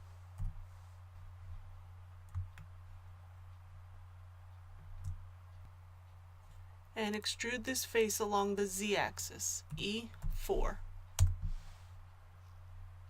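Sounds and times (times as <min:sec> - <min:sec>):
low electrical hum: 0:00.0 - 0:13.0
computer mouse clicks: 0:02.2 - 0:02.7, 0:04.8 - 0:05.2.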